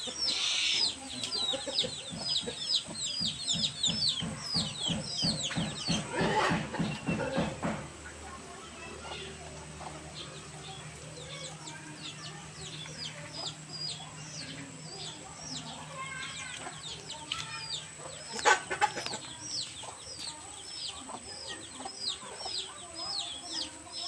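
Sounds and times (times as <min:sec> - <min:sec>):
chicks peeping: 0:00.0 - 0:24.0
sharp clatter of knocks: 0:02.1 - 0:07.9.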